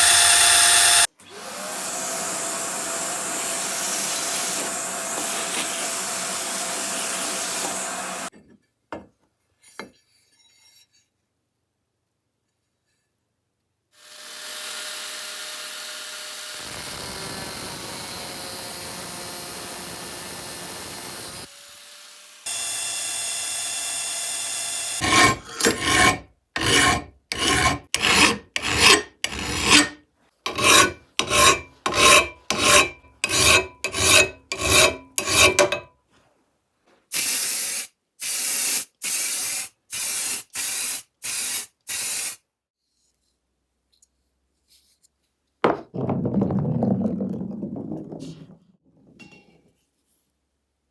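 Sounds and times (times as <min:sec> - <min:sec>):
abrasive rubbing on wood: 0:25.0 - 0:35.8.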